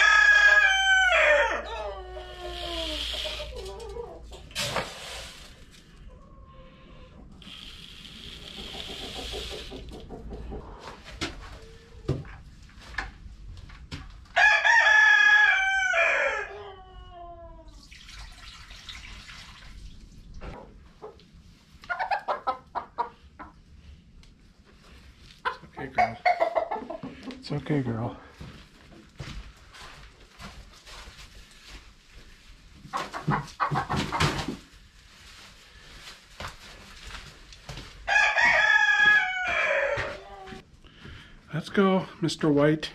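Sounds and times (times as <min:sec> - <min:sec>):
rooster crowing: 0:00.0 - 0:02.6, 0:14.4 - 0:16.9, 0:38.1 - 0:40.6
chickens clucking: 0:01.4 - 0:04.6, 0:06.0 - 0:12.4, 0:20.5 - 0:23.8, 0:25.3 - 0:28.1, 0:32.8 - 0:34.6.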